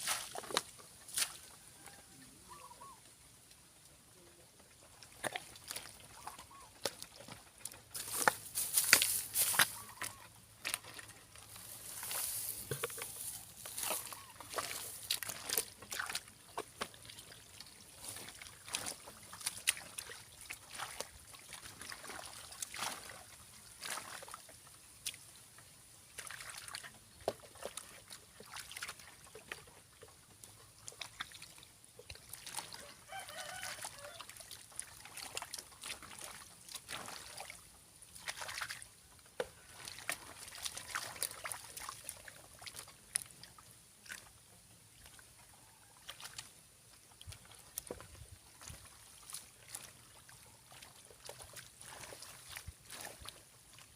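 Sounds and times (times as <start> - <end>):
muddy water splashing: 0.0 - 53.9
rooster crowing: 32.8 - 34.3.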